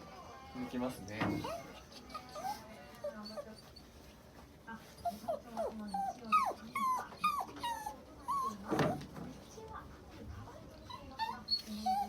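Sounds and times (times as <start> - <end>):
dog whining: 1.4 - 3.8, 5.0 - 9.0, 10.9 - 12.0.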